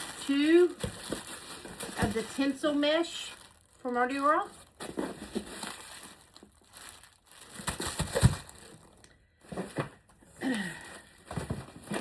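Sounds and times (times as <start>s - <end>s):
tinsel and packaging crinkling: 0.0s - 9.0s.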